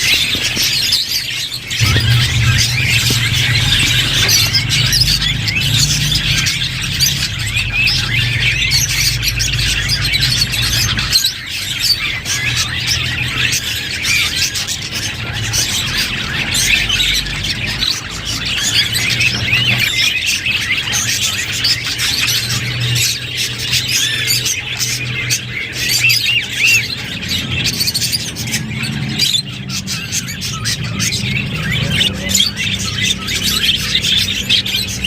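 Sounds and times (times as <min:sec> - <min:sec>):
budgerigars chattering: 0:00.0 - 0:35.0
low steady hum: 0:01.8 - 0:11.2.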